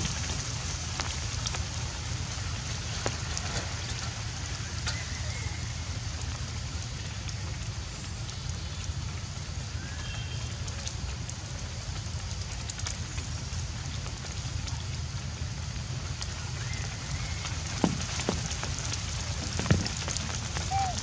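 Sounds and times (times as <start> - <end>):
light crackling and clicks: 10.5 - 21.0.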